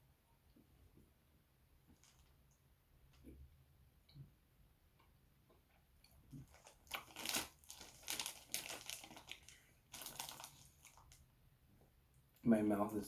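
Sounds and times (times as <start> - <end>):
crunchy chewing of chocolate: 6.0 - 11.2.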